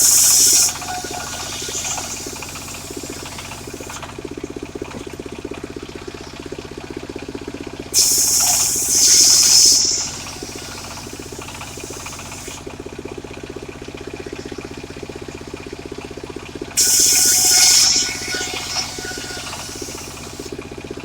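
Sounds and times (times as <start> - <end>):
saw blade cutting wood: 0.0 - 4.1, 8.0 - 12.6, 16.8 - 20.6
circular saw engine running: 0.0 - 5.0, 7.9 - 13.4, 16.3 - 21.0.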